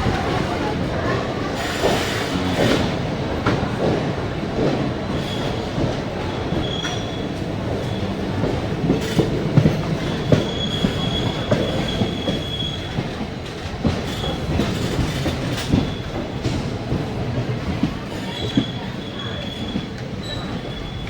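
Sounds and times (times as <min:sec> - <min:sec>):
train rumble: 0:00.0 - 0:21.0
train wheels knocking on track: 0:00.0 - 0:21.0
high wheel squeal: 0:06.4 - 0:08.3.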